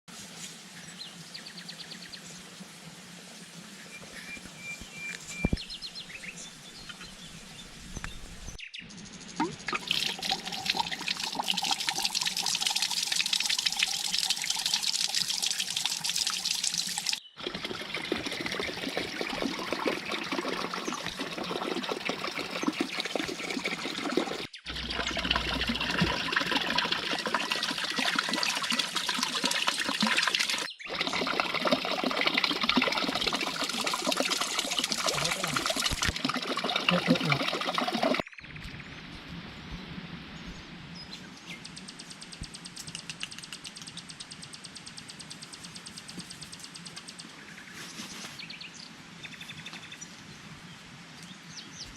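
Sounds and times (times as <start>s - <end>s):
running pouring water: 9.4s - 38.3s.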